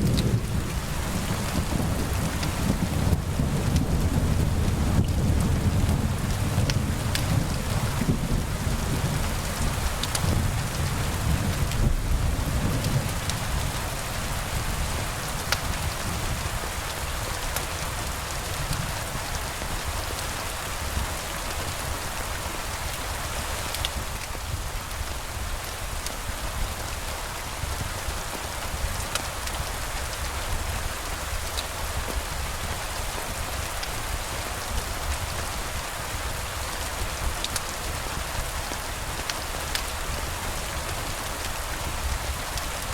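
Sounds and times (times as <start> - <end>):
thunder rumble: 0.0 - 16.5
steady rain: 0.0 - 42.9.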